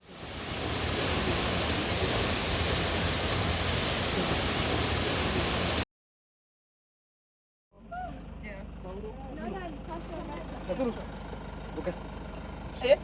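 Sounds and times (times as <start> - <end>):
waterfall rushing: 0.0 - 5.8.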